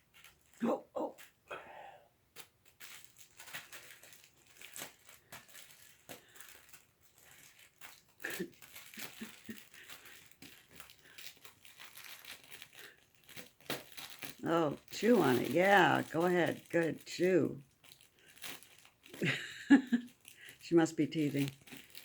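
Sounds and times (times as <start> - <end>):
cat toys rustling and crinkling: 0.0 - 1.4, 2.3 - 22.0.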